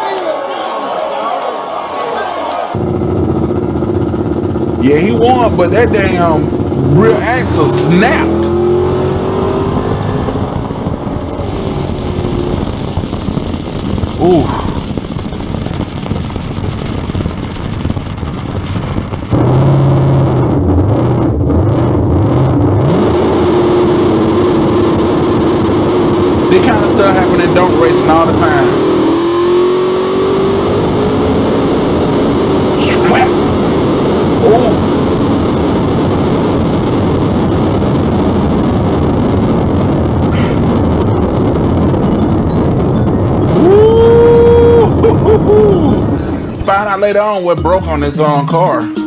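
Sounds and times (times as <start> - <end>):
car engine revving: 2.7 - 16.1, 19.3 - 47.2
race track rumble: 2.7 - 46.8.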